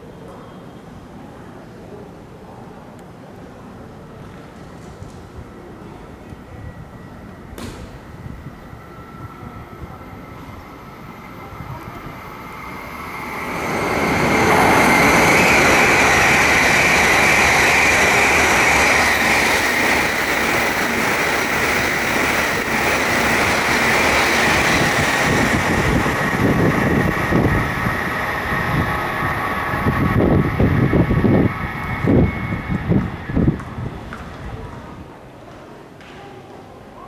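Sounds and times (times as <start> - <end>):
steady high whine: 6.4 - 34.1
train rushing past: 6.8 - 34.7.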